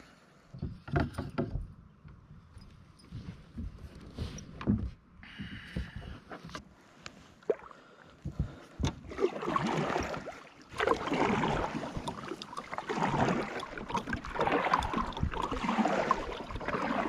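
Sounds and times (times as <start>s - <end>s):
paddle strokes splashing water: 7.2s - 17.0s.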